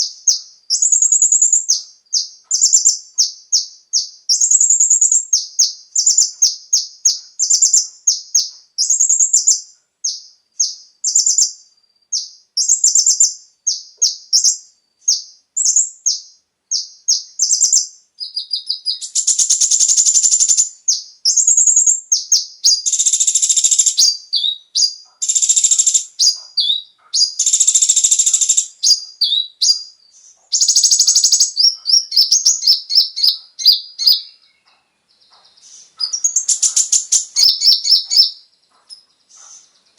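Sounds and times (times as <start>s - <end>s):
bird chirping song: 0.0s - 39.9s
buzzy bird trills: 0.0s - 39.9s.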